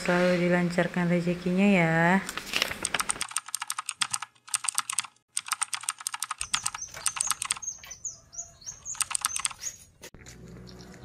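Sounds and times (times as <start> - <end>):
keyboard typing clicks: 2.8 - 7.9, 8.9 - 9.6
bird chirps: 6.4 - 10.1.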